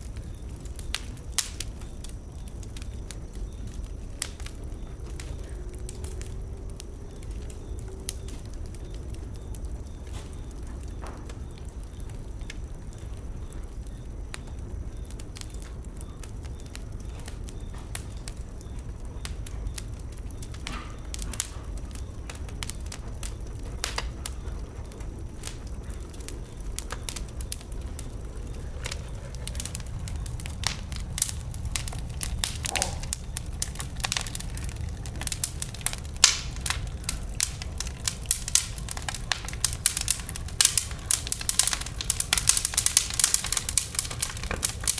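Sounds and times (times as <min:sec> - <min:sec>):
bonfire crackling and popping: 0:00.0 - 0:44.9
low steady fire rumble: 0:00.0 - 0:44.9.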